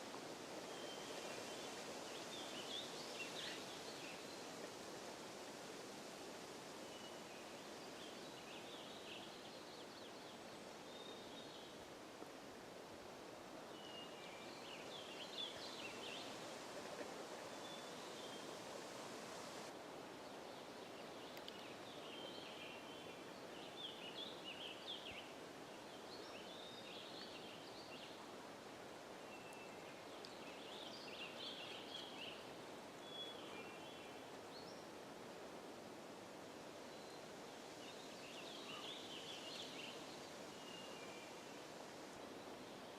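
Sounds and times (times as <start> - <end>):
background hiss: 0.0 - 42.9
songbirds chirping: 29.2 - 35.0.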